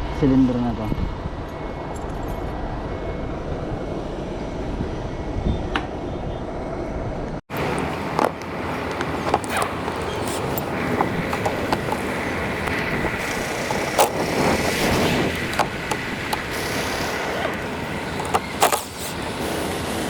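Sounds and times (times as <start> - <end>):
sharp clicks and knocks: 7.5 - 19.3
vehicle engine rumbling: 7.5 - 20.0.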